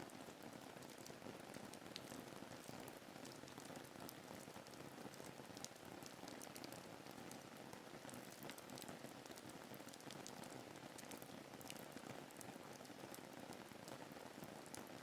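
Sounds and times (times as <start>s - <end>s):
faint steady rain: 0.0s - 15.0s.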